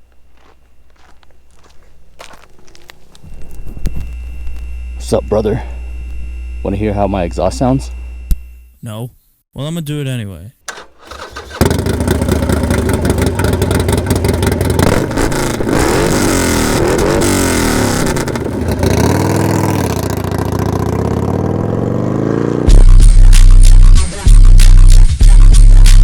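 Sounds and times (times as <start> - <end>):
motorcycle engine revving and idling: 11.0 - 23.2
loud music with heavy bass beat: 22.6 - 26.0.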